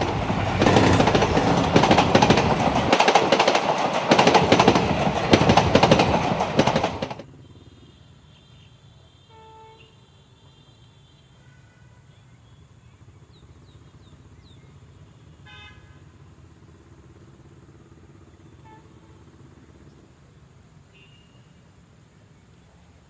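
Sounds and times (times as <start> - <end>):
passing motor vehicle rumble: 0.0 - 7.2.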